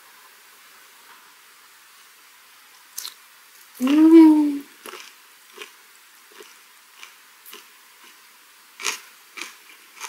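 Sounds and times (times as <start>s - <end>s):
chewing with wet mouth clicks: 3.0s - 3.2s
food crunch: 3.0s - 3.2s, 4.8s - 8.2s, 8.8s - 10.0s
person humming: 3.8s - 4.7s.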